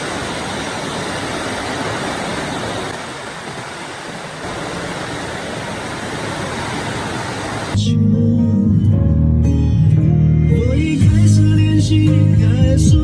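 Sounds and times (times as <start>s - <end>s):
steady rain hiss: 0.0s - 7.8s.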